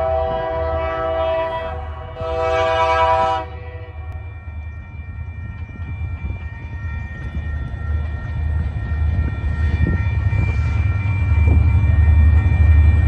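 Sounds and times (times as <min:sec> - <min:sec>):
diesel locomotive engine rumble: 0:00.0 - 0:13.0
crossing bell ringing: 0:01.6 - 0:13.0.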